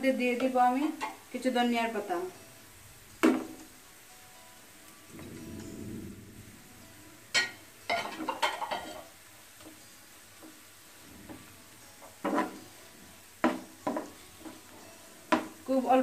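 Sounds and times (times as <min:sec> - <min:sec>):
utensil stirring in cooking pan: 0:07.3 - 0:16.0.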